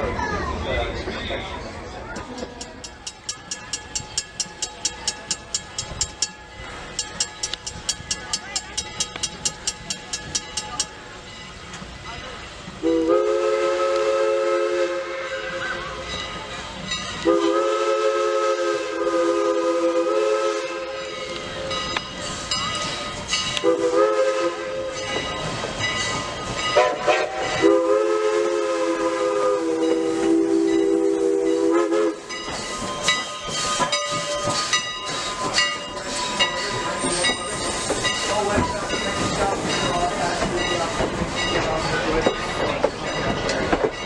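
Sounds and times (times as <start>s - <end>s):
train clanking and clicking: 0.0s - 44.0s
steam hissing: 2.4s - 43.8s
steam locomotive whistle: 12.8s - 16.1s, 17.2s - 21.4s, 23.6s - 25.0s, 26.7s - 34.8s.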